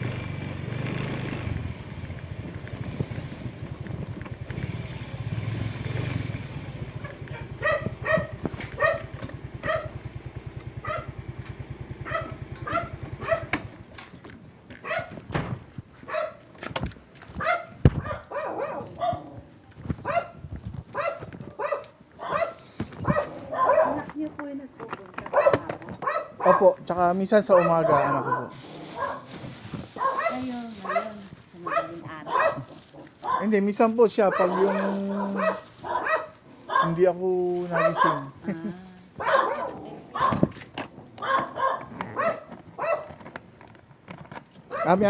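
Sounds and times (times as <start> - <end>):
dog barking: 7.0 - 10.0, 10.8 - 11.2, 12.0 - 13.6, 14.8 - 15.2, 16.1 - 16.4, 17.4 - 19.4, 20.0 - 20.4, 21.0 - 24.2, 25.3 - 26.8, 27.5 - 29.3, 30.0 - 33.6, 34.2 - 37.1, 37.7 - 38.4, 39.2 - 40.6, 41.2 - 43.2, 44.7 - 45.0.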